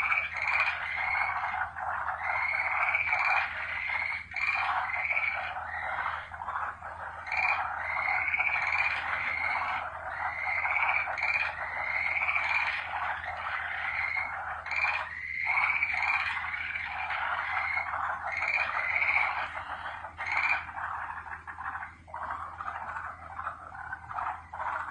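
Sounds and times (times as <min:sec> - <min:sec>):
frogs calling in chorus: 0:00.0 - 0:24.9.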